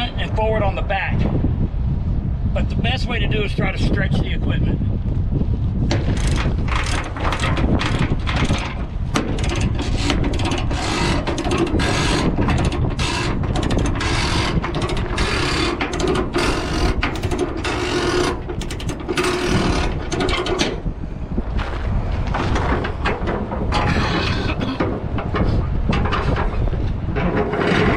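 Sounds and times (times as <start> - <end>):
low wind rumble: 0.0 - 27.9
chain binder clicking and clattering: 5.9 - 20.8.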